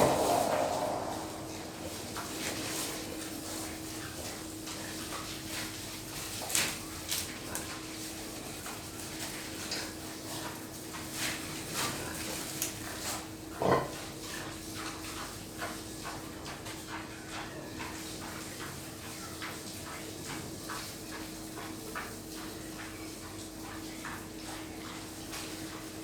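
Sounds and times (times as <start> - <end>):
steady hum: 0.0 - 4.0
pigs grunting and squealing: 13.5 - 14.1.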